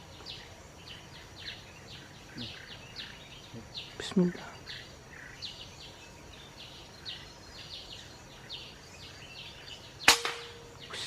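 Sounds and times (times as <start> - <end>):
night insects chirping: 0.0 - 11.0
air rifle shot: 10.1 - 10.7.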